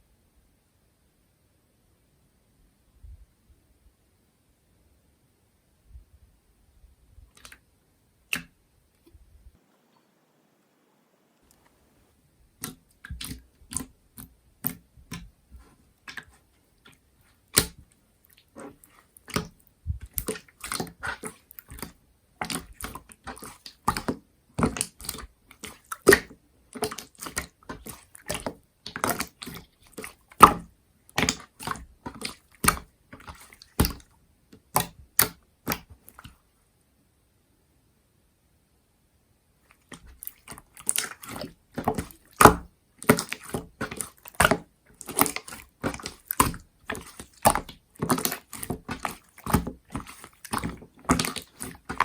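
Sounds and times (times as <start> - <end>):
slime sticky wet pops: 8.3 - 8.5, 12.6 - 15.3, 16.1 - 17.8, 18.4 - 36.4, 39.8 - 52.0.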